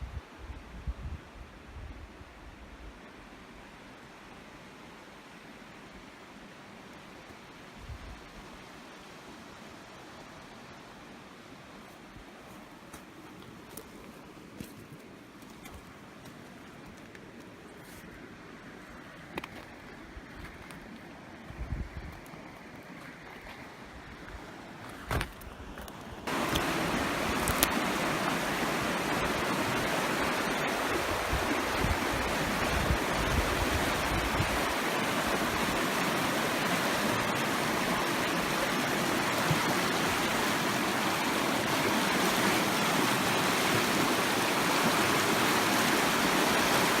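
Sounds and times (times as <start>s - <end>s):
mountain creek rushing: 25.9s - 47.0s.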